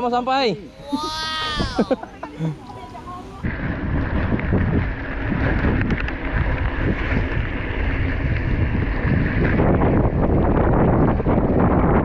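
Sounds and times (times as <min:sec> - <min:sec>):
wind buffeting microphone: 0:03.4 - 0:12.0.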